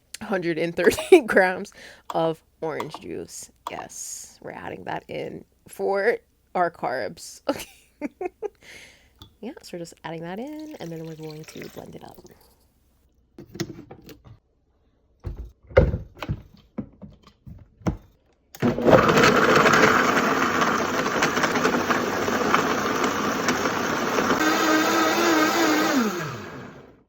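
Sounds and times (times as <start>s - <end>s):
blender running: 18.6s - 27.0s.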